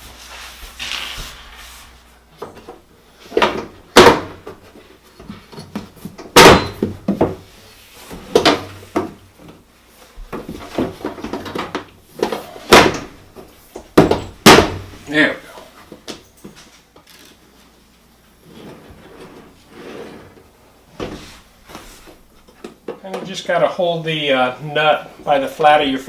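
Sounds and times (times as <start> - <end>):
drawer knocking and banging: 5.6 - 7.4, 14.0 - 14.9.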